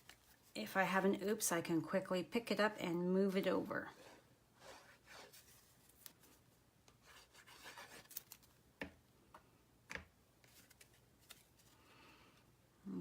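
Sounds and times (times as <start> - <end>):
cardstock rustling and rubbing: 3.3 - 6.4, 7.0 - 8.5, 10.4 - 11.8.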